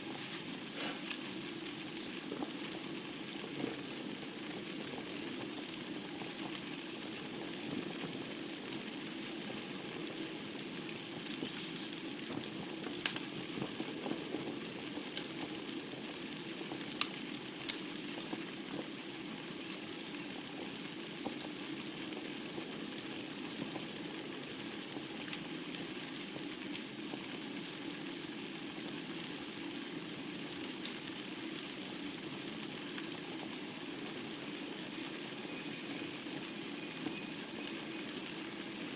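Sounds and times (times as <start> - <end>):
fire crackling: 0.0 - 38.9
rush of flames: 0.0 - 38.9.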